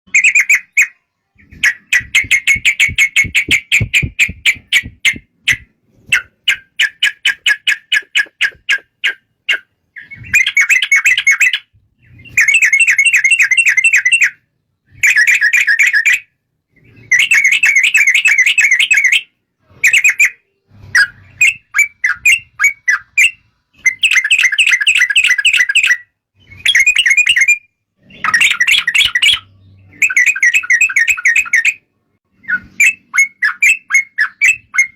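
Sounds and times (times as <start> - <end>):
bird singing chattering phrases: 0.1 - 14.3.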